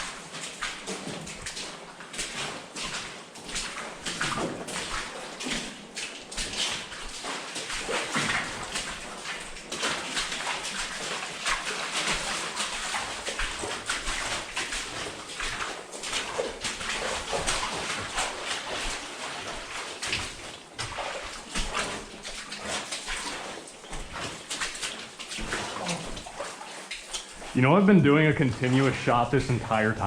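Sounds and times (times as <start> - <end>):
boots squelching through mud: 0.0 - 29.8.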